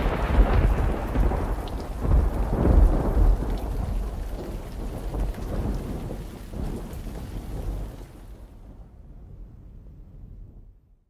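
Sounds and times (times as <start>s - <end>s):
rain hiss: 0.0s - 8.6s
low rolling thunder: 0.0s - 11.0s.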